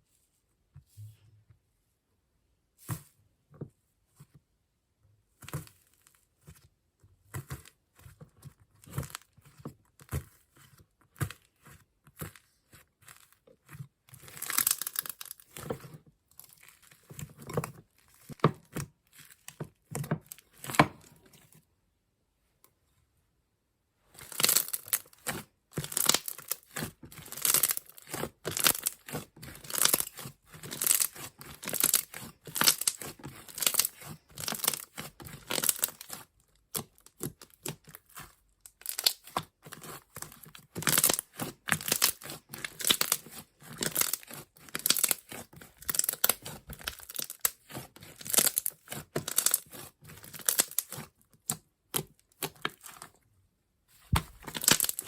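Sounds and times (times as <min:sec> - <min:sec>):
slime crust crackling and crunching: 0:07.3 - 0:21.1, 0:24.1 - 0:53.2, 0:53.9 - 0:55.0.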